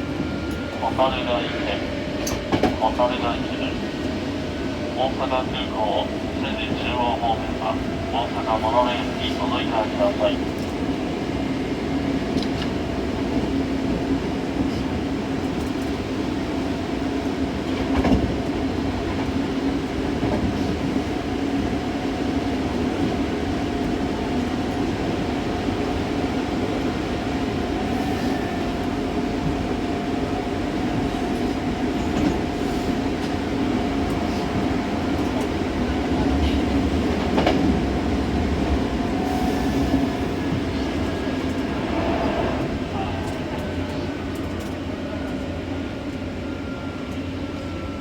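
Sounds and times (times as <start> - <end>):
wheels rumbling on rail: 0.0 - 48.0
rail joint clack: 31.0 - 33.4, 34.0 - 37.8.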